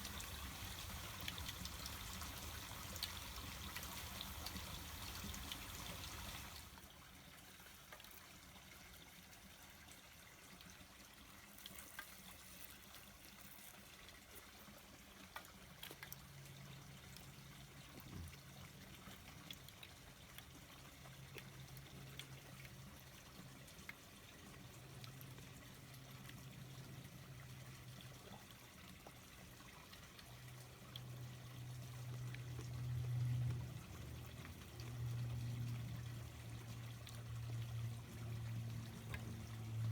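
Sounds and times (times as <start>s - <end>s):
water trickling: 0.0s - 39.9s
low steady hum: 15.4s - 39.9s.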